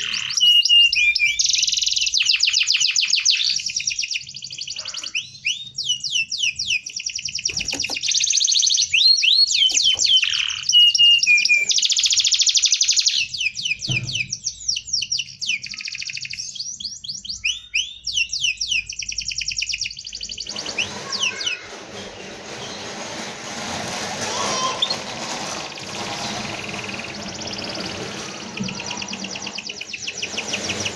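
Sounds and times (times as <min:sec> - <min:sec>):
canary singing trills: 0:00.0 - 0:21.7, 0:25.8 - 0:30.9
broad noisy sound: 0:20.2 - 0:30.9.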